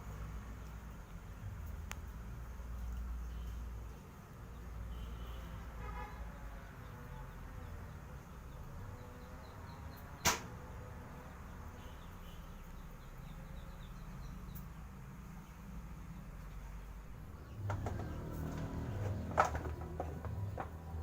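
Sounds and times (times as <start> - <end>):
sharp click: 10.2 - 10.5.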